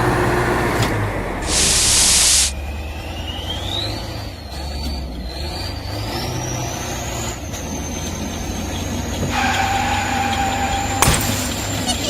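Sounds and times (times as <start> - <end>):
vehicle engine running: 0.0 - 12.0
high whine: 1.4 - 2.6.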